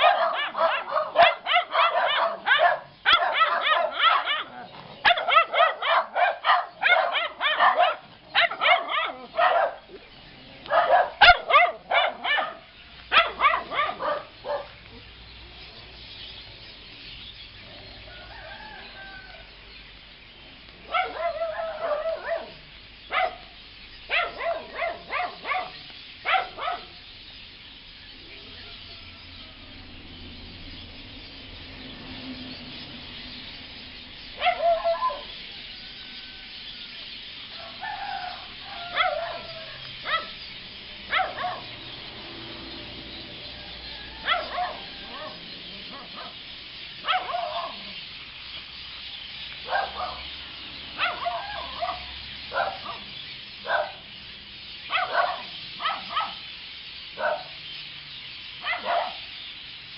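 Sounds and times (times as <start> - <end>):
dogs barking: 0.0 - 15.1, 20.7 - 27.0, 34.2 - 36.4, 37.5 - 48.1, 49.5 - 57.9, 58.5 - 59.6
birds giving harsh calls: 0.0 - 59.9.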